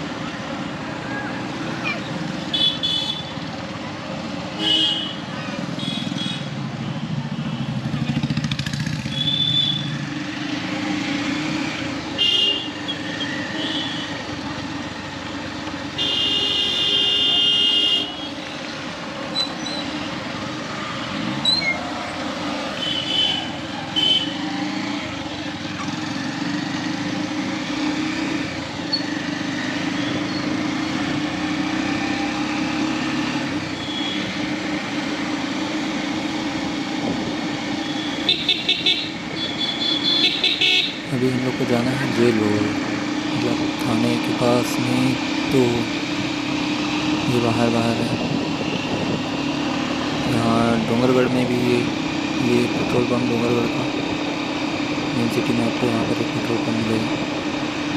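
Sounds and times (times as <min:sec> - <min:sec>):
motorcycle engine: 0:00.0 - 0:57.9
vehicle horns honking: 0:02.4 - 0:03.4, 0:04.6 - 0:06.5, 0:09.1 - 0:10.0, 0:12.2 - 0:14.2, 0:16.0 - 0:18.4, 0:22.7 - 0:24.4, 0:33.8 - 0:34.3, 0:37.8 - 0:41.1.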